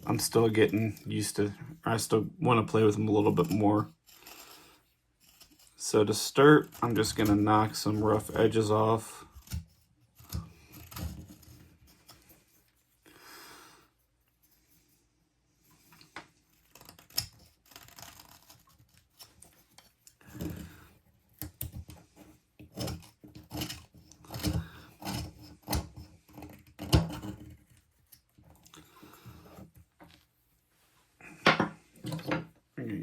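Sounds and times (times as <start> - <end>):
knife carving wood: 0.0 - 13.0, 15.6 - 30.2.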